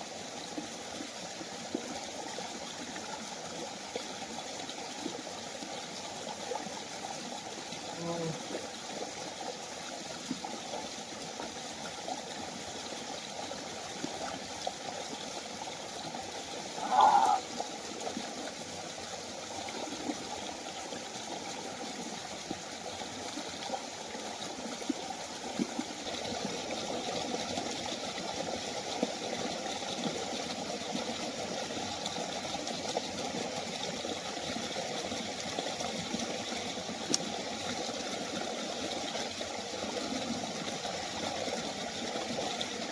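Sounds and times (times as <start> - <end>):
waterfall water running: 0.0 - 42.9.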